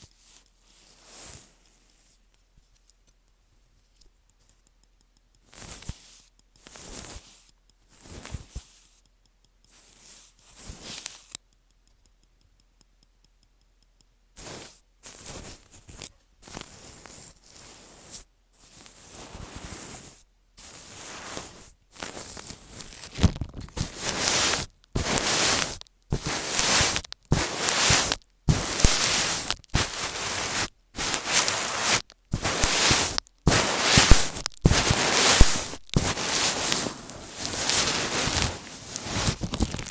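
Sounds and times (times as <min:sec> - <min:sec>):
scratching on microphone: 0:15.4 - 0:39.9.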